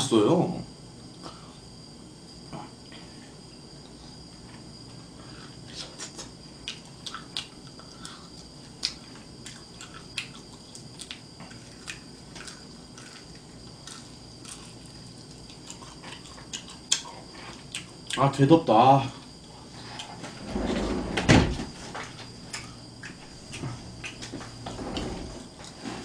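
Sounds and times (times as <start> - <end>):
open-mouthed chewing and lip-smacking: 5.6 - 18.2.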